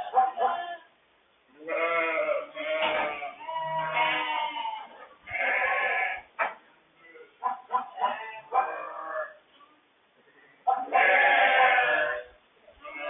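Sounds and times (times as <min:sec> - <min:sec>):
sheep bleating: 0:00.0 - 0:00.9, 0:01.6 - 0:06.3, 0:10.8 - 0:13.0.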